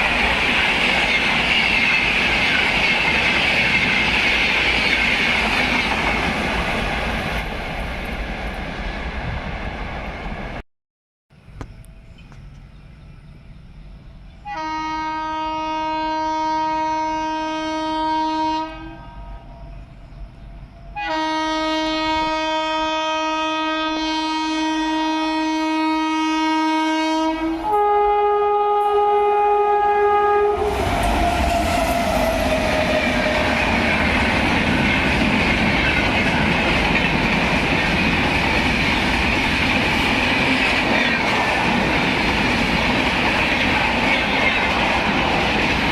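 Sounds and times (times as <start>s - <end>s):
locomotive horn blasts: 14.4s - 19.4s, 21.0s - 33.3s
train wheels clattering past: 30.6s - 45.9s.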